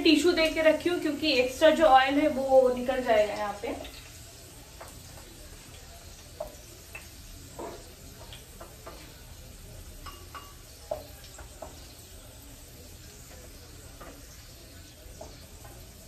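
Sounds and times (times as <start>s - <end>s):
potatoes sizzling in oil: 0.0s - 16.0s.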